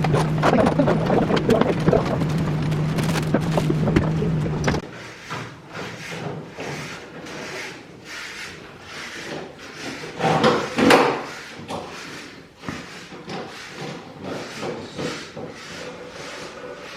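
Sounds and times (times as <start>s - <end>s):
wooden parts scraping and knocking: 0.0s - 7.4s.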